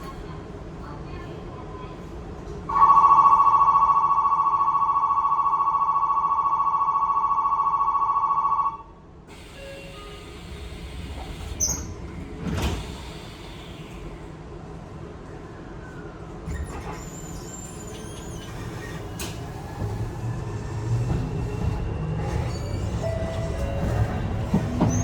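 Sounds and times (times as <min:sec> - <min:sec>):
sliding doors closing: 0:09.4 - 0:14.2, 0:16.5 - 0:25.0.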